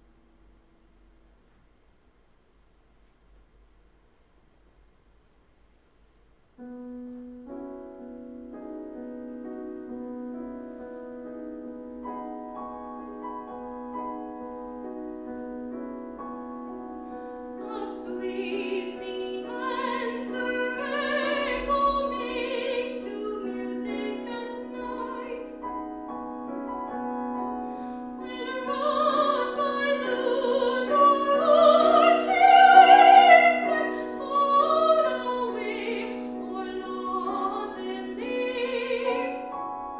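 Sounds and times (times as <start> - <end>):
piano accompaniment: 6.6 - 39.9
trained singer with vibrato: 28.2 - 39.6.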